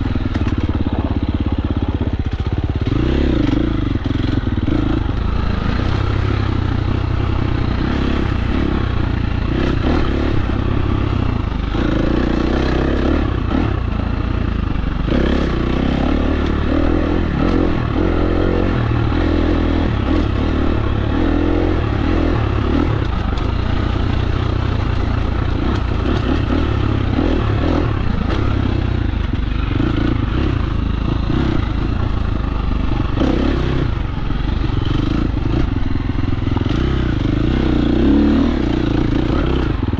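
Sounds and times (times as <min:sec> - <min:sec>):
dirt bike engine running: 0:00.0 - 0:39.9
knocks and rattles of bike: 0:00.0 - 0:39.9.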